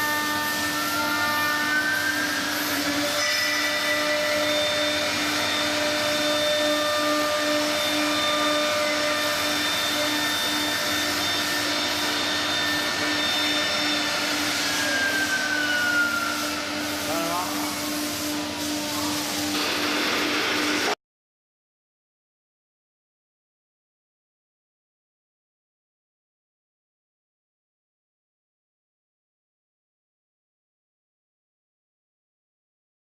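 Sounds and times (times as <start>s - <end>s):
router spindle whine: 0.0s - 21.0s.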